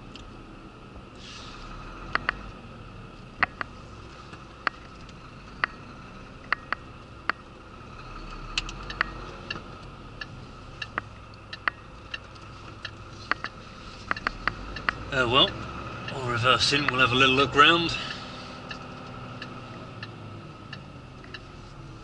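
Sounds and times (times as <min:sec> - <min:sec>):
lorry engine hum: 0:00.0 - 0:22.0
cab rattling clicks: 0:02.1 - 0:02.6, 0:03.4 - 0:05.8, 0:06.4 - 0:07.5, 0:08.2 - 0:21.5.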